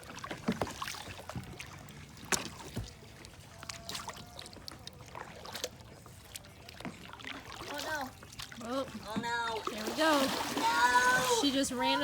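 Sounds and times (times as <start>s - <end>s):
paddle strokes splashing: 0.0s - 12.0s
paddle knocking against hull: 0.2s - 1.6s.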